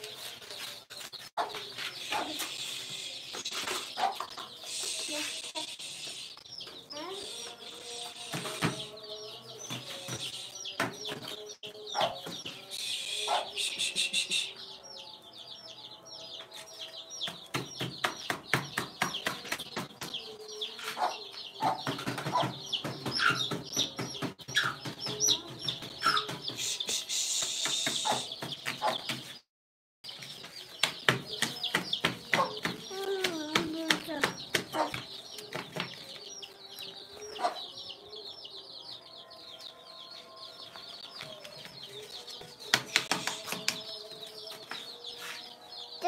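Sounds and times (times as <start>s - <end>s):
chicks peeping: 0.0s - 29.4s, 30.1s - 46.0s
hens clucking: 3.4s - 5.9s.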